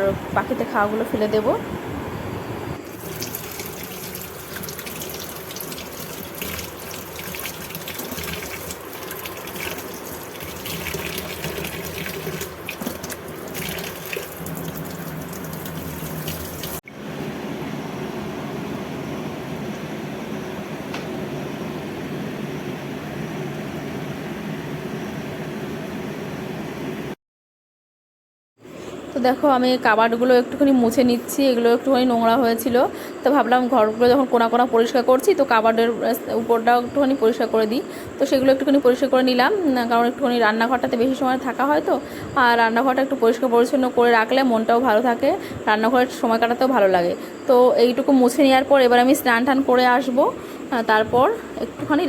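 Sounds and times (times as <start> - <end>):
dull steady hiss: 0.0 - 16.8
tap water splashing into sink: 2.9 - 16.8.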